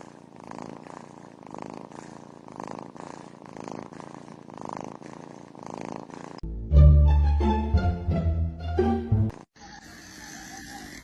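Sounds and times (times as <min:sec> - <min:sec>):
cat purring: 0:00.0 - 0:06.4.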